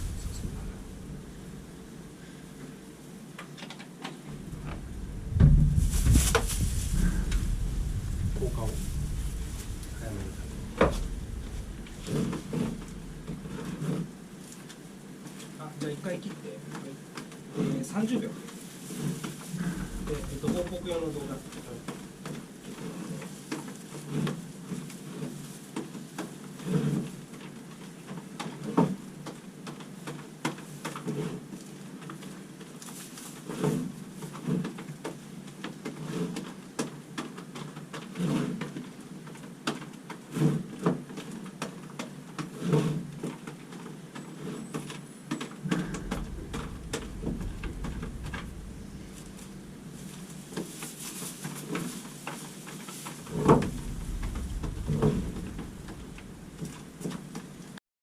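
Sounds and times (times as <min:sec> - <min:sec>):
low rumble: 0:00.0 - 0:03.1, 0:04.3 - 0:14.4, 0:19.4 - 0:22.8, 0:45.6 - 0:51.4, 0:53.2 - 0:57.8
soft knocks and thumps: 0:04.3 - 0:14.0.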